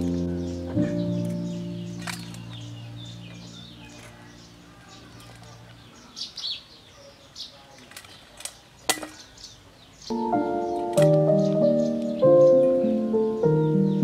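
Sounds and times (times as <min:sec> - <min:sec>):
background music: 0:00.0 - 0:04.8, 0:10.1 - 0:14.0
small birds chirping: 0:00.0 - 0:14.0
metal tongs clicking on grill rack: 0:02.0 - 0:02.7.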